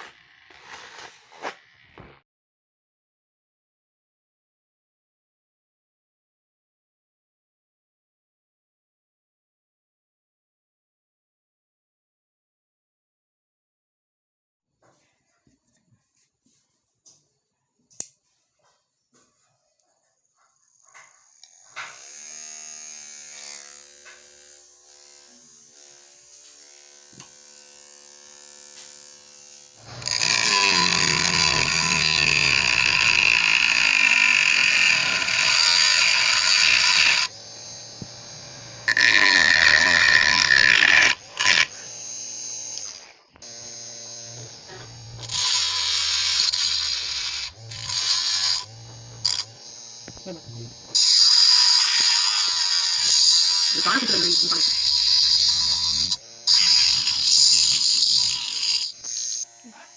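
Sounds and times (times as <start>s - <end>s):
small drill motor whine: 0.0s - 2.2s, 20.4s - 59.9s
loud noisy motor running: 25.3s - 51.4s, 53.0s - 59.9s.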